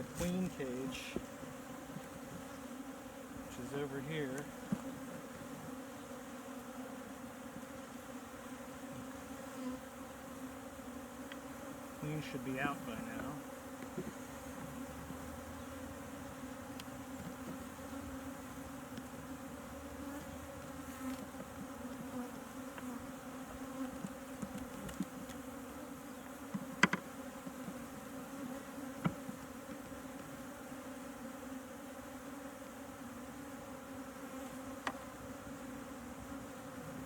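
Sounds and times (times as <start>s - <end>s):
honeybees buzzing: 0.0s - 37.0s.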